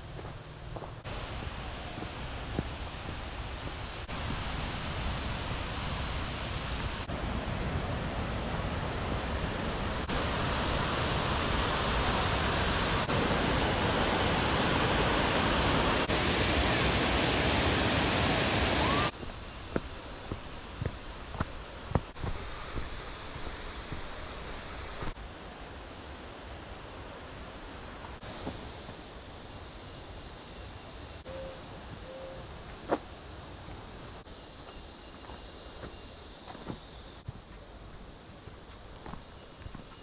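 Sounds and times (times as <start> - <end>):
waterfall rushing: 1.1 - 19.2.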